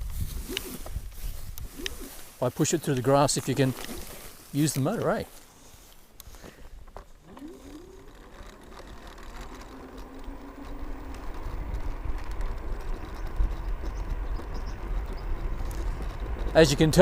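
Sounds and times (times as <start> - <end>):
wind and tyre rumble: 0.0 - 17.0
electric scooter motor whining: 3.0 - 5.2, 6.2 - 17.0.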